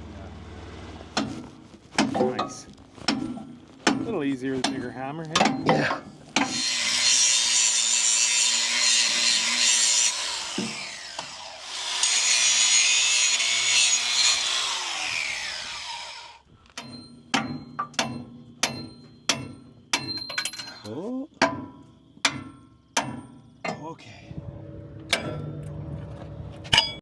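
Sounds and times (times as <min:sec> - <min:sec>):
power tool on metal: 0:06.4 - 0:16.4.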